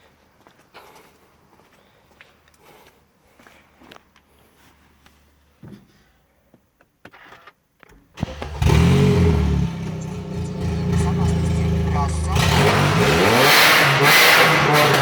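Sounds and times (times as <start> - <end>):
car engine starting and running: 8.2 - 15.0.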